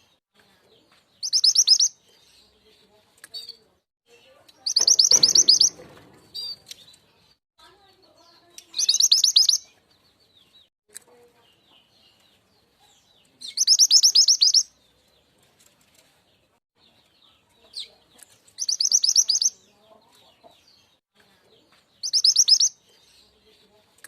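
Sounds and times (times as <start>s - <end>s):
faint bird chirps: 0.7s - 2.7s, 3.3s - 6.9s, 8.2s - 9.8s, 11.1s - 15.0s, 17.1s - 20.6s, 21.2s - 23.4s
bird trill of high notes: 4.7s - 5.8s.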